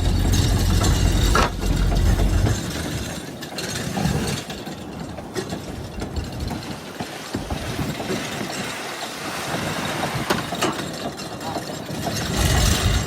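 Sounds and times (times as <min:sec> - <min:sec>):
boat engine running: 0:00.0 - 0:03.0.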